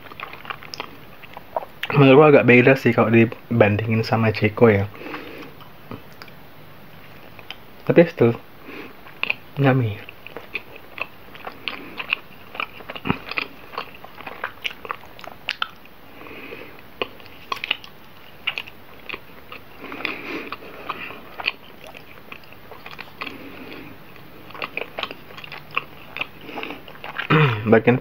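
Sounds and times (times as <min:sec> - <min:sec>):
wet chewing mouth clicks: 0:00.0 - 0:02.0, 0:09.0 - 0:09.4, 0:10.0 - 0:15.9, 0:17.0 - 0:27.3.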